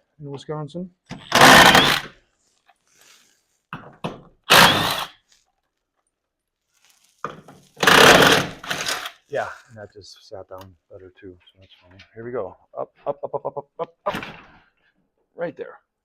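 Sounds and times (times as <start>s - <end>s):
tool bursts on metal door track: 4.5s - 5.1s.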